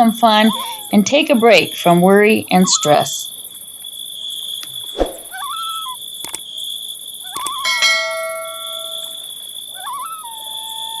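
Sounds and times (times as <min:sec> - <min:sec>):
high insect-like chirring: 0:00.0 - 0:11.0
whistled glides: 0:04.6 - 0:06.0
bell-like chime ringing: 0:07.6 - 0:09.2.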